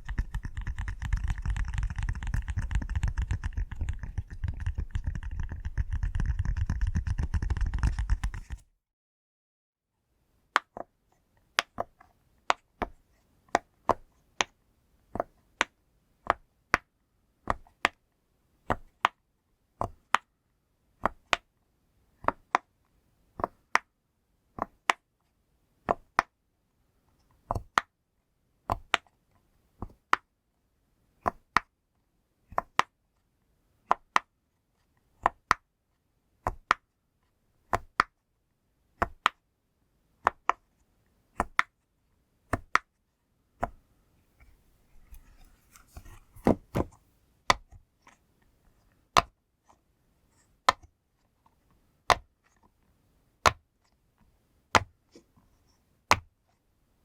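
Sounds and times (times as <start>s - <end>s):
fidget toy popping: 0.0s - 8.6s.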